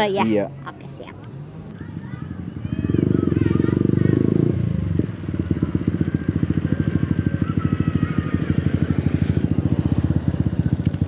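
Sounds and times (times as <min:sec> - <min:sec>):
motorcycle engine idling: 0:02.6 - 0:11.0.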